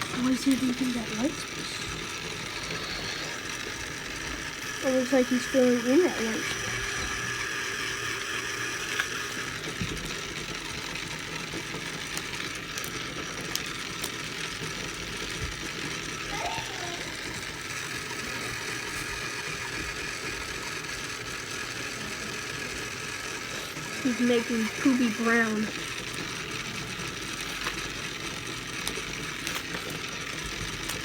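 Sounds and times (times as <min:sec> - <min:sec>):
small motor rattling: 0:00.0 - 0:31.0.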